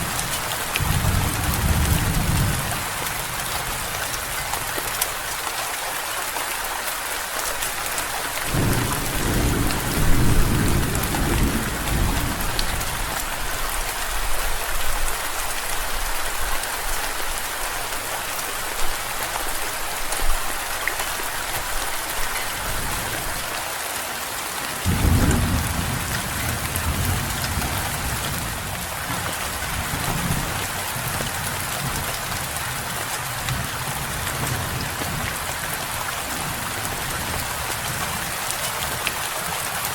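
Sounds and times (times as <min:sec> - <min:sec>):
steady rain falling: 0:00.0 - 0:39.9
thunder rolling: 0:08.5 - 0:12.9, 0:24.9 - 0:28.5.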